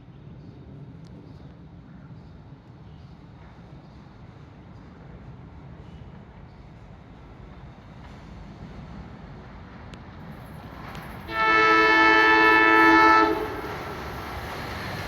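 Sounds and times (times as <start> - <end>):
electric train rumbling: 0.1 - 15.0
train horn blast: 11.3 - 14.2.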